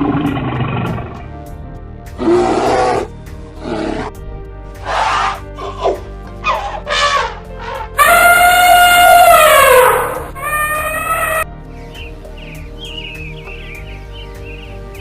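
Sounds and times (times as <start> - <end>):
background music: 0.0 - 15.0
rough animal calls: 2.2 - 4.2, 4.8 - 11.5.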